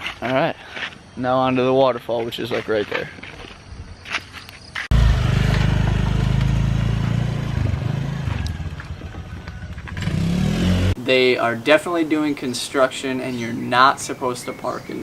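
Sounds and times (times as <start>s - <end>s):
small motorbike engine: 4.9s - 11.0s.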